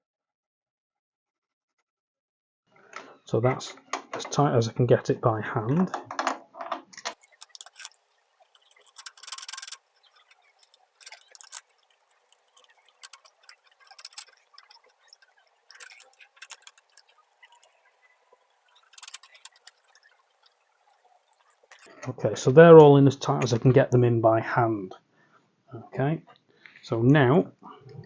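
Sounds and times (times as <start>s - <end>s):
light metallic clicks: 7.2s - 21.9s
socket rattling scrapes: 7.2s - 21.9s.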